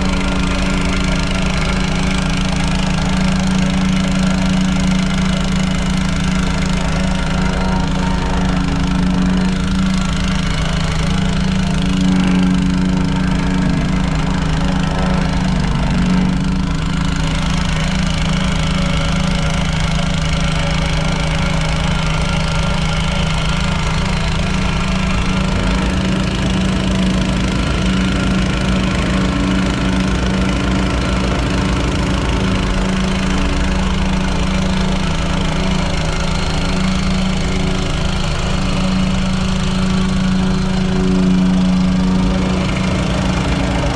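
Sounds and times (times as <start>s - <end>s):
landscaping equipment engine running: 0.0s - 43.9s.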